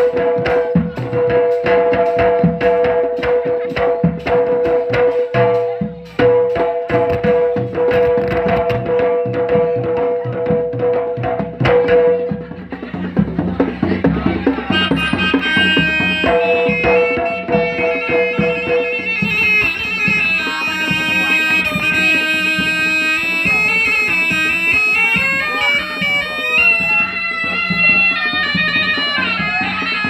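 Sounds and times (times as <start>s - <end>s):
hand drum strokes: 0.0s - 30.0s
shrill reed pipe melody: 14.5s - 30.0s.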